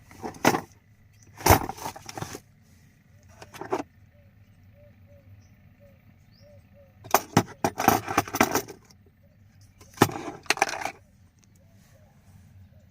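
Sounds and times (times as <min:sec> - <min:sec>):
hard objects clattering: 0:00.0 - 0:02.4, 0:03.3 - 0:03.9, 0:07.0 - 0:09.0, 0:09.8 - 0:11.0.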